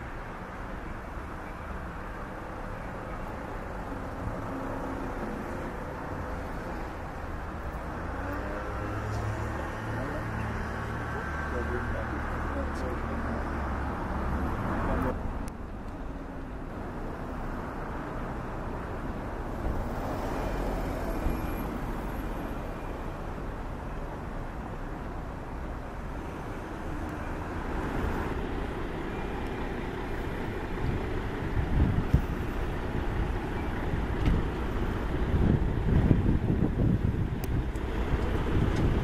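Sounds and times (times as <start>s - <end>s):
road traffic noise: 0.0s - 39.0s.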